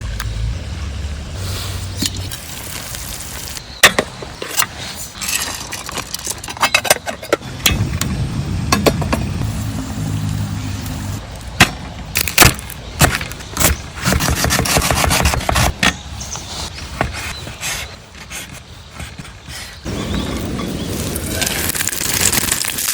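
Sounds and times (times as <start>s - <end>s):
rustling or scraping: 4.3s - 7.4s
low rumble: 7.4s - 12.0s.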